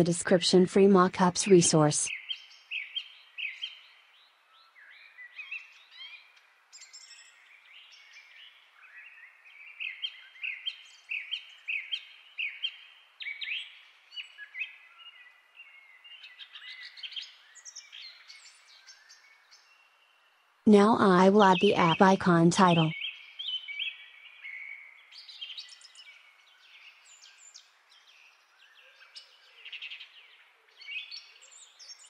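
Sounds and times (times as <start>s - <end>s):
birds chirping and singing: 4.6s - 20.3s.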